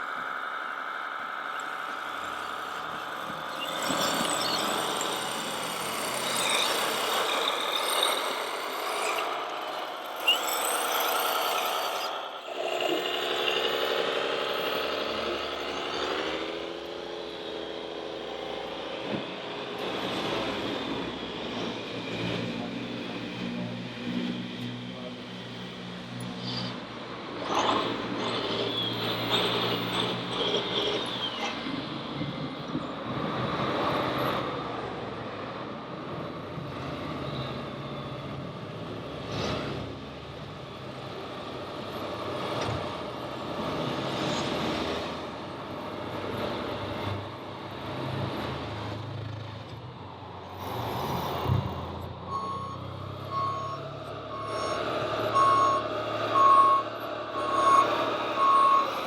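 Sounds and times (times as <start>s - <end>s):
model truck motors whining: 0.0s - 59.0s
reversing beeper: 1.9s - 5.5s, 52.2s - 59.0s.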